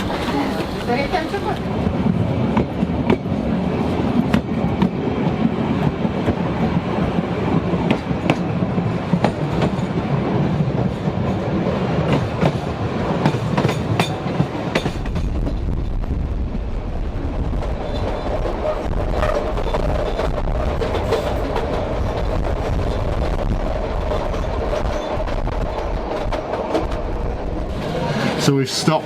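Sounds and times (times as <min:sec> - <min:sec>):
wheels clacking over rail joints: 0:00.0 - 0:16.0, 0:17.5 - 0:28.5
train carriage rumble: 0:00.0 - 0:29.0.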